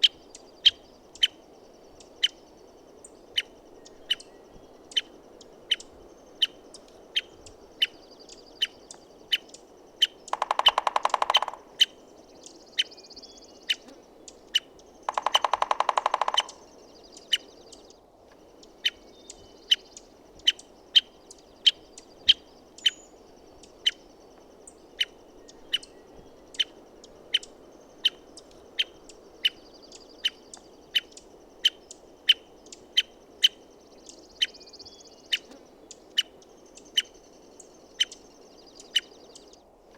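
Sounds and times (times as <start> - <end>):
low background hiss: 0.0 - 39.9
woodpecker calling: 3.3 - 39.6
woodpecker drumming: 10.0 - 12.9, 13.7 - 17.6.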